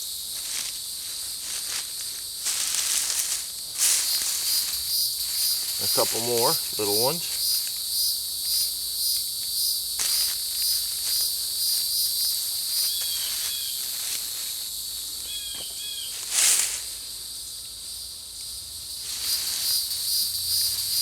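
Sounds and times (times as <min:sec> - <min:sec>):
insects chorus pulsing: 0:00.0 - 0:21.0.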